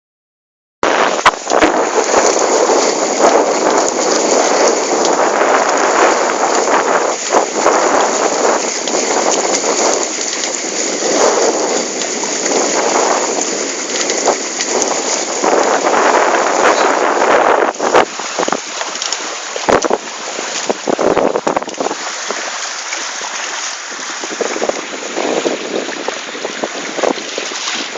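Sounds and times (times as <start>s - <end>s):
crackles: 0.8s - 21.9s
wind and water rushing: 0.8s - 27.9s.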